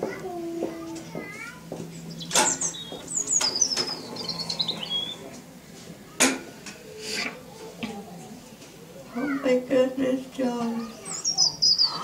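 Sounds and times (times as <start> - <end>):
songbird warbling: 10.9 - 12.0.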